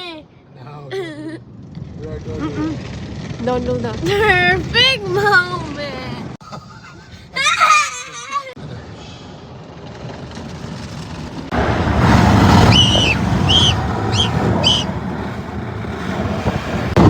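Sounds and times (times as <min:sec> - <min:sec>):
car wash water spray rushing: 0:10.9 - 0:17.0
short high-pitched squeals: 0:12.6 - 0:14.9.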